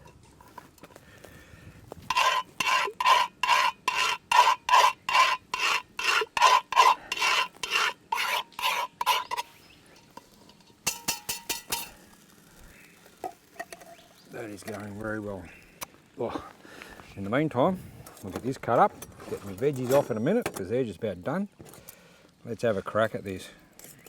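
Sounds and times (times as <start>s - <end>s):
metal utensil scraping iron pot: 2.1s - 12.0s.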